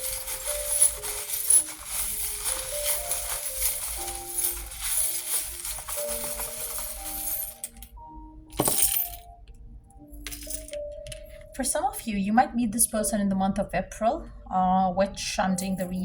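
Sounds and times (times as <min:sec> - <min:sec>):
charms rattling: 0:00.0 - 0:08.0, 0:08.6 - 0:09.3, 0:10.1 - 0:11.5
soft background music: 0:00.0 - 0:16.0.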